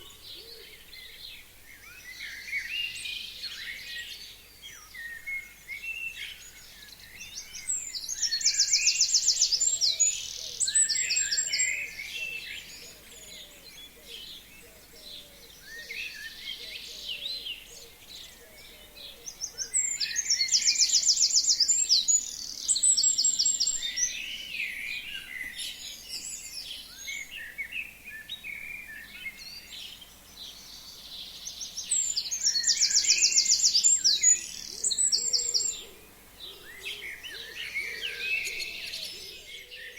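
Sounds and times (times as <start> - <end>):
other birds calling softly: 0.0 - 39.9
songbird singing a fast high trill: 19.4 - 35.8.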